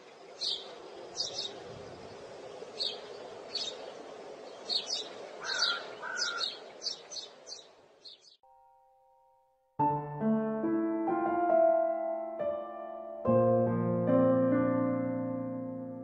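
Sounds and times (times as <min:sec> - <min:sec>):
background hiss: 0:00.0 - 0:08.3
small birds chirping: 0:00.0 - 0:08.4.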